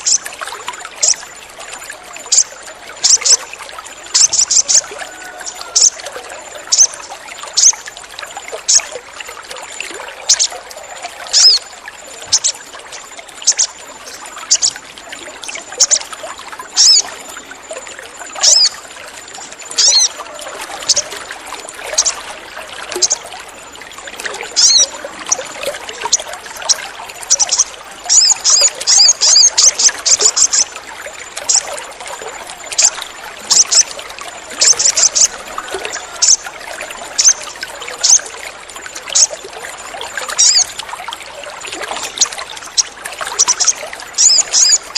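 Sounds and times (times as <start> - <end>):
water trickling: 0.0 - 44.9
bird high chirps: 11.3 - 11.6, 12.3 - 12.6, 13.4 - 13.8, 16.8 - 17.0, 18.4 - 18.7, 19.8 - 20.1, 24.6 - 24.9, 26.7 - 30.7, 40.4 - 40.7, 42.2 - 44.9.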